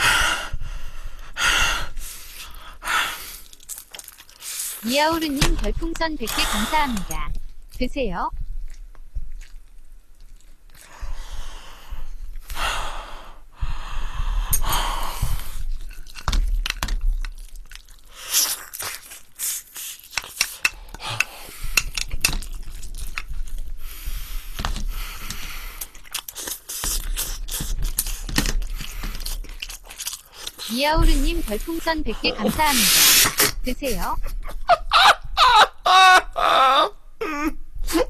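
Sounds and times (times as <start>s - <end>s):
chewing and crunching fried chicken: 3.3s - 4.9s, 8.6s - 11.0s, 15.6s - 20.6s, 21.8s - 23.8s, 25.3s - 30.8s.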